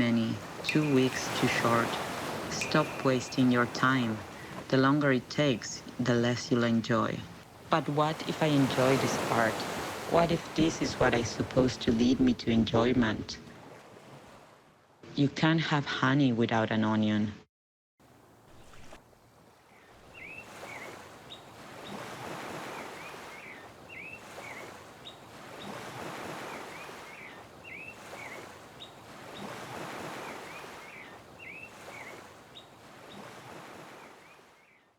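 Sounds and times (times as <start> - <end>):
surf washing in and out: 0.0 - 12.7, 18.1 - 34.7
bird chirping: 0.6 - 6.0.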